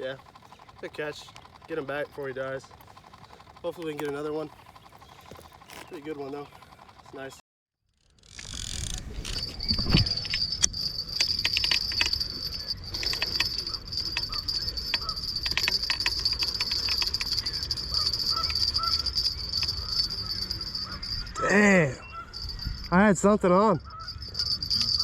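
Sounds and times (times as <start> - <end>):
sharp clicks and rattles: 0.0 - 7.4, 8.2 - 25.0
insect trill: 8.0 - 25.0.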